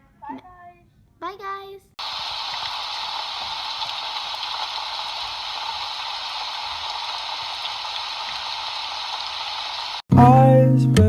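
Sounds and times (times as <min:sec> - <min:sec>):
steady rushing hiss: 0:02.0 - 0:10.0.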